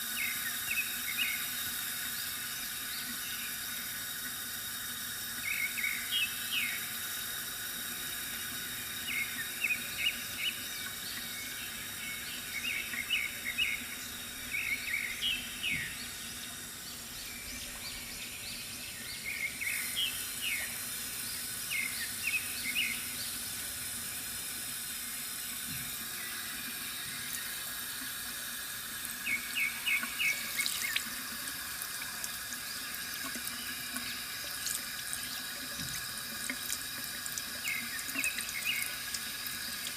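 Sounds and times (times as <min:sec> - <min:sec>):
water trickling from fountain: 0:00.0 - 0:39.9
small birds chirping: 0:05.4 - 0:06.9, 0:09.0 - 0:23.4, 0:29.2 - 0:31.2, 0:37.6 - 0:39.9.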